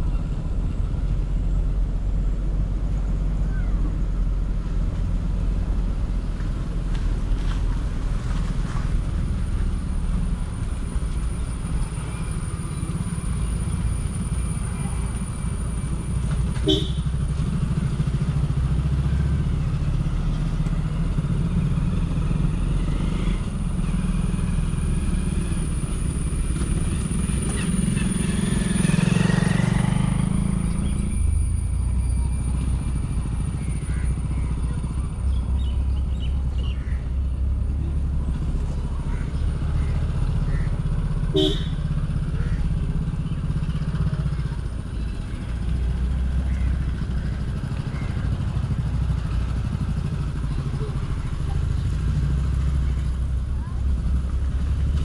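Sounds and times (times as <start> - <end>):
motorcycle engine running: 5.0 - 55.0.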